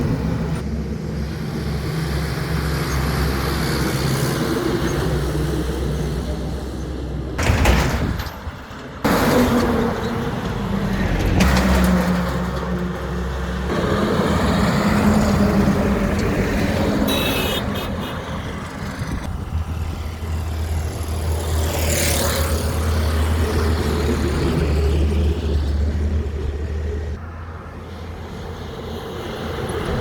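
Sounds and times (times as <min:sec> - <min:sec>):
heavy truck engines: 0:00.0 - 0:30.0
highway traffic: 0:00.0 - 0:30.0.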